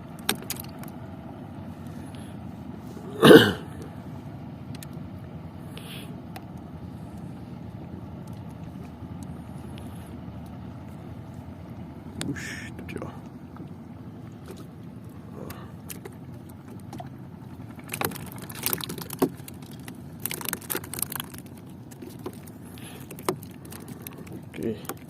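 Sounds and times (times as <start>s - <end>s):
boat engine rumble: 0.0s - 25.0s
short grunt-like vocal sound: 3.0s - 3.8s.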